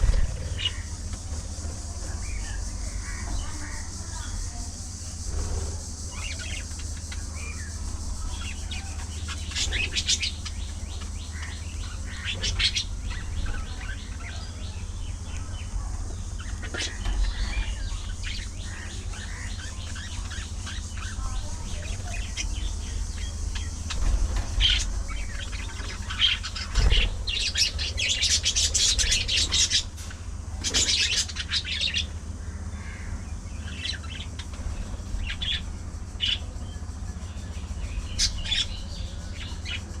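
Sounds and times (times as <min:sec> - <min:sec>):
wings fluttering: 0:00.0 - 0:14.3, 0:15.4 - 0:32.4, 0:33.6 - 0:40.0
budgerigars chirping: 0:00.0 - 0:40.0
steady low hum: 0:00.0 - 0:40.0.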